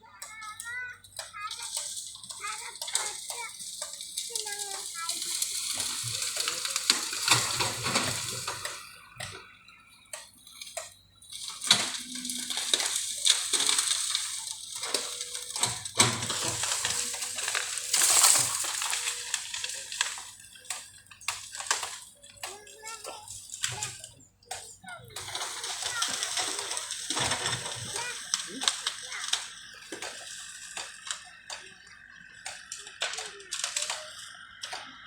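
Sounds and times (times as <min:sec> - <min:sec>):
bamboo crackling and snapping: 0:01.1 - 0:09.5, 0:10.1 - 0:35.0.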